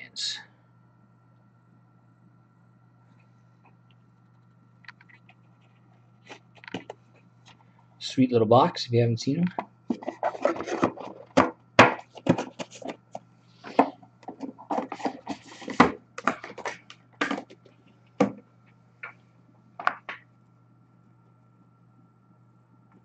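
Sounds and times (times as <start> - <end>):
hands handling cardboard boxes: 9.9 - 17.6.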